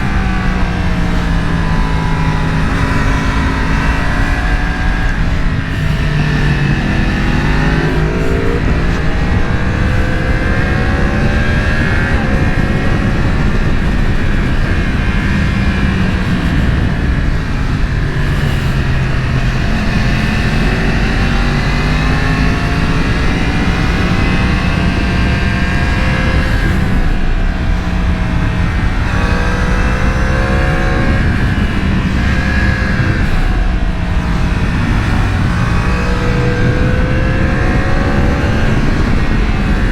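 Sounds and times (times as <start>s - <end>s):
motorcycle engine revving: 0.0s - 39.9s
rushing road noise: 0.0s - 39.9s.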